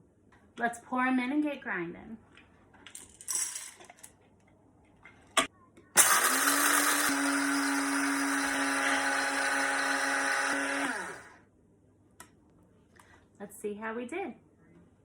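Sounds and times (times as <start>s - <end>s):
coffee grinder motor grinding: 6.0s - 11.4s.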